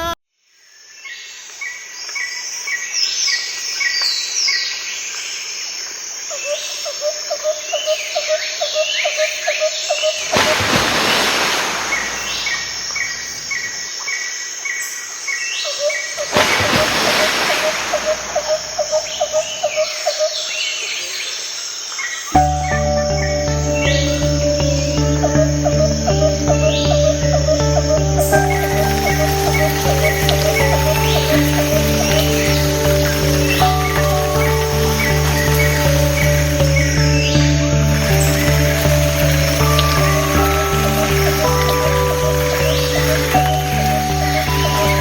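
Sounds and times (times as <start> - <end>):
birds chirping: 7.7 - 45.0
rapid insect-like trill: 22.4 - 45.0.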